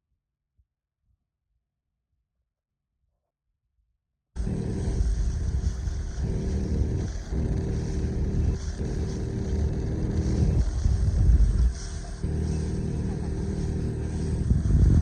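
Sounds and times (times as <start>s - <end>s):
motor engine rumbling: 4.4s - 15.0s.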